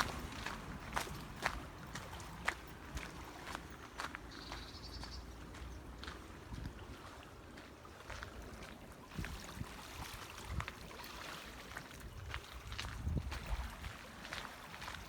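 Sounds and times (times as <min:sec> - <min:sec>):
wind rumble on microphone: 0:06.0 - 0:07.2, 0:08.2 - 0:10.9, 0:11.9 - 0:15.0.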